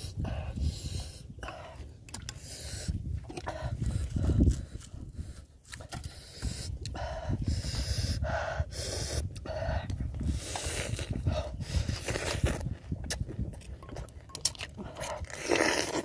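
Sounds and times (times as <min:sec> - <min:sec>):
noisy breathing: 0:00.0 - 0:12.4
man chewing: 0:00.2 - 0:07.0, 0:09.1 - 0:16.0
crunchy bites: 0:14.4 - 0:16.0.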